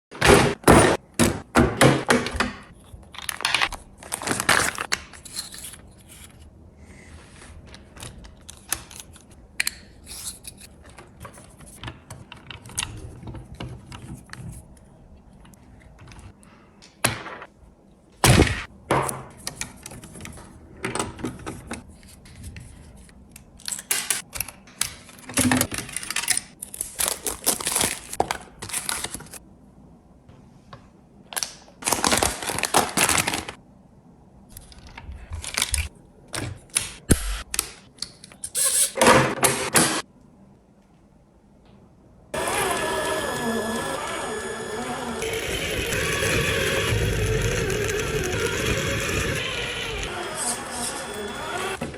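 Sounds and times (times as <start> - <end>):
plastic toy truck rattling: 45.2 - 50.0.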